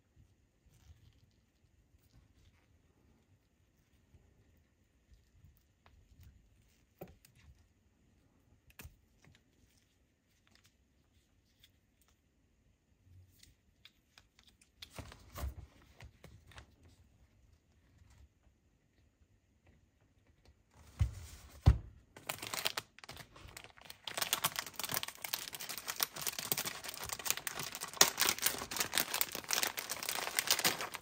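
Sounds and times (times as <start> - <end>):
packaging rustling: 20.9 - 31.0.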